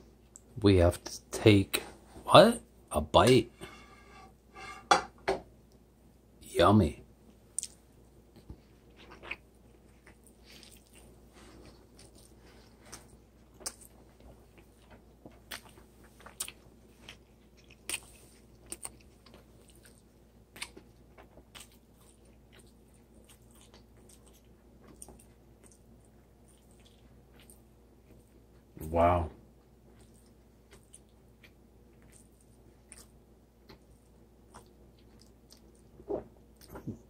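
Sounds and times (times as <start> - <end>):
person chewing food: 7.6 - 28.7, 29.6 - 37.0.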